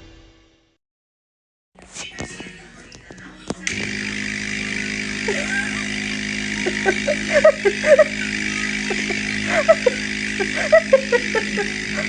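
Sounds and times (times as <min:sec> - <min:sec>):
nasal aspirator motor humming: 0:02.4 - 0:12.0.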